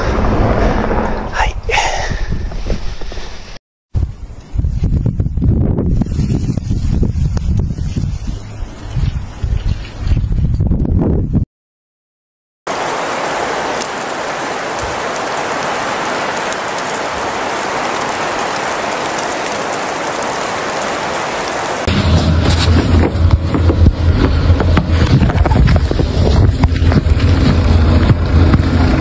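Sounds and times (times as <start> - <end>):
gusty low rumble: 0.0 - 11.4, 21.4 - 29.0
storm noise hiss: 12.7 - 28.6.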